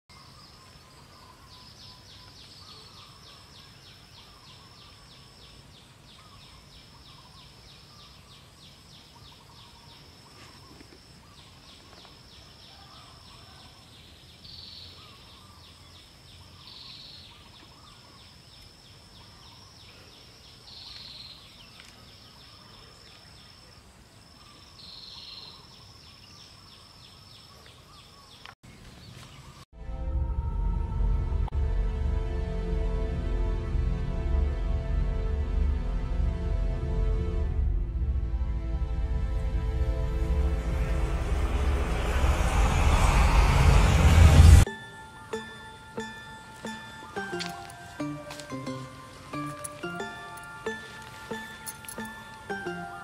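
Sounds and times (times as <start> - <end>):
insect trill: 0.1 - 28.4, 44.6 - 53.0
faint bird chirps: 0.1 - 29.6.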